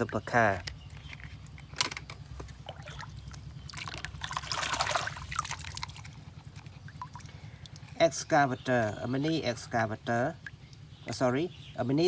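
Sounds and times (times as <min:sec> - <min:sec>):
small clicks and knocks: 0:00.0 - 0:02.6
water trickling and splashing: 0:00.0 - 0:08.3.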